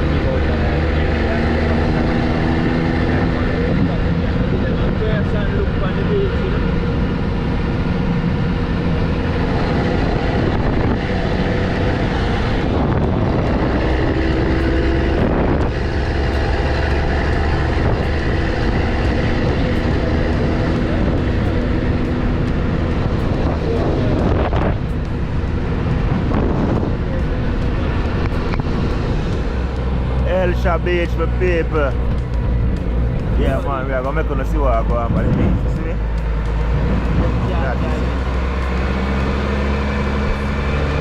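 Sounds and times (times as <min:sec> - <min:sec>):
road and wind noise: 0:00.0 - 0:41.0
vehicle engine running: 0:00.0 - 0:41.0.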